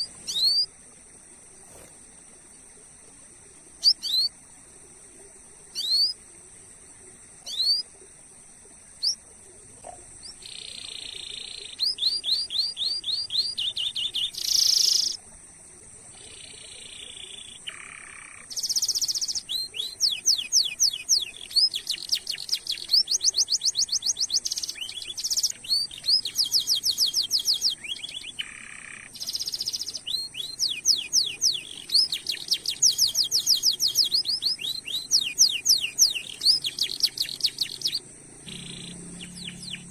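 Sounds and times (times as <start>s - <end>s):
canary singing: 0.0s - 0.7s, 5.8s - 6.2s, 7.4s - 7.9s, 9.8s - 15.2s, 16.1s - 39.9s
steady high-pitched whine: 0.0s - 39.9s.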